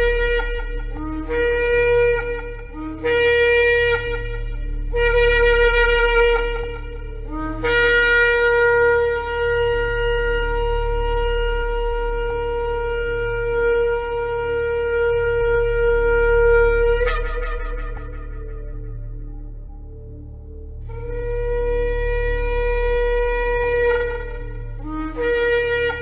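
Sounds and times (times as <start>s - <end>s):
ram's horn blasts: 0.0s - 19.9s, 20.9s - 26.0s
low hum: 0.0s - 26.0s.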